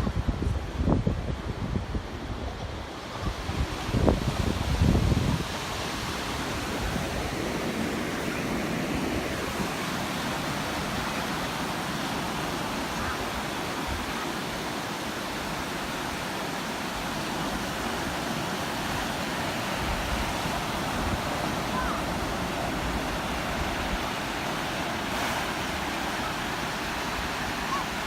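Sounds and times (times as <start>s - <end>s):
waves breaking on shore: 0.0s - 28.0s.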